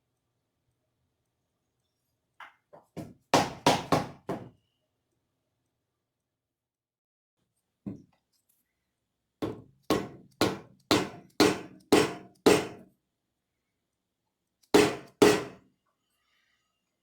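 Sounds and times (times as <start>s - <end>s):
hammer strikes with dull ring: 9.4s - 12.8s, 14.8s - 15.6s.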